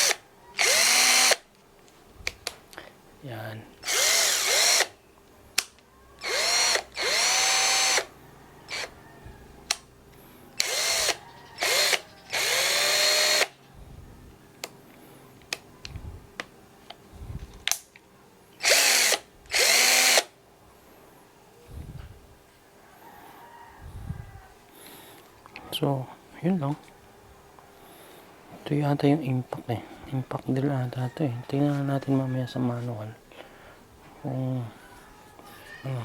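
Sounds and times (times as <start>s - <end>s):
cordless drill motor whining: 0.0s - 1.4s, 3.8s - 5.0s, 6.2s - 8.1s, 8.7s - 9.0s, 10.6s - 13.5s, 18.6s - 20.3s.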